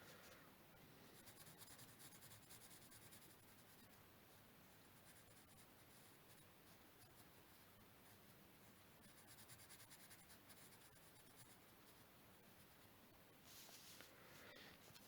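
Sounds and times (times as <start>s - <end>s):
pencil scratching on paper: 1.1s - 12.9s.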